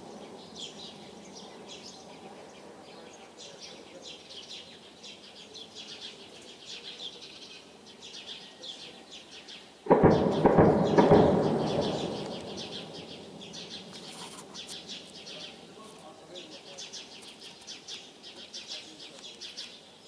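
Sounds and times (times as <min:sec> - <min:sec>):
birds chirping: 0:00.0 - 0:20.0
loud explosion booming: 0:09.9 - 0:15.1.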